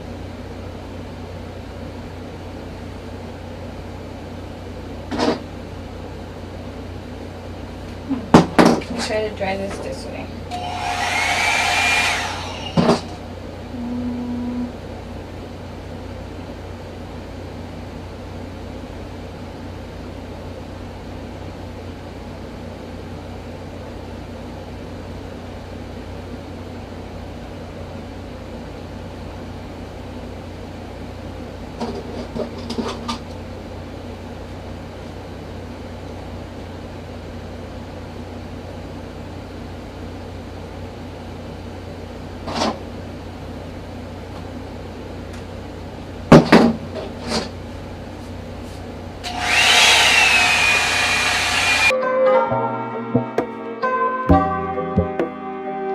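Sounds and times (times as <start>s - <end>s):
hair dryer brush humming: 10.5s - 13.2s, 49.2s - 51.9s.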